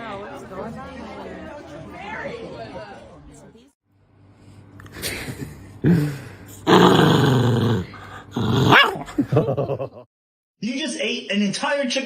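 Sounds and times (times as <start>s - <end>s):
dog growling: 6.6s - 9.2s.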